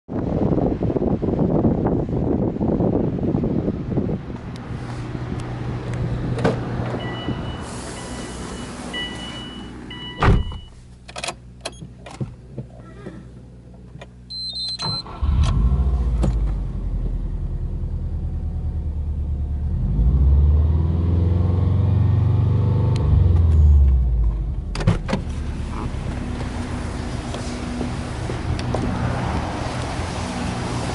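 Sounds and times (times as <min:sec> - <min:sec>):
car door shutting: 0:08.9 - 0:12.7, 0:14.4 - 0:16.6, 0:23.9 - 0:26.6.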